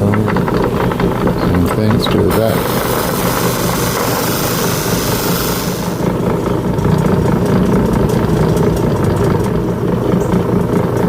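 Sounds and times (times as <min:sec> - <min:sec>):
cabbing machine motor running: 0:00.0 - 0:11.0
stone hissing against spinning wheel: 0:00.4 - 0:06.2.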